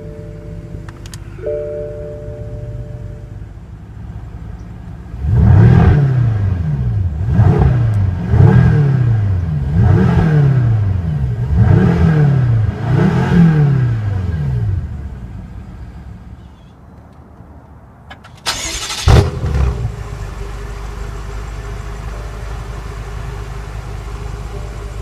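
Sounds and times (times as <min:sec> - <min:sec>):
car engine revving: 0:05.1 - 0:15.2, 0:18.5 - 0:22.0.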